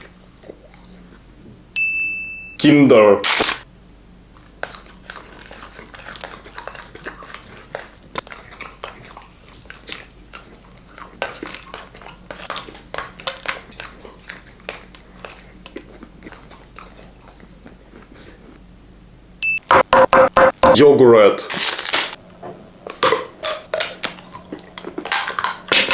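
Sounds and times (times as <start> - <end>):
chocolate crunching and chewing: 4.4 - 18.6, 22.9 - 25.9.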